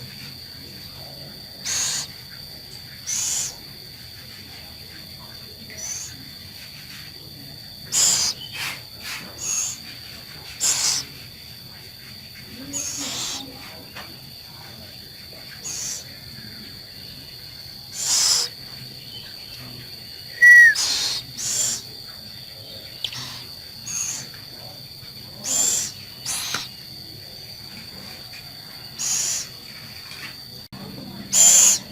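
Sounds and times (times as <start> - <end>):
owl raspy hissing calls: 1.6 - 2.2, 3.0 - 3.6, 5.7 - 6.2, 7.9 - 9.9, 10.5 - 11.2, 12.7 - 13.5, 15.6 - 16.1, 17.9 - 18.6, 20.3 - 21.9, 23.0 - 24.3, 25.4 - 26.7, 29.0 - 29.5, 31.3 - 31.9.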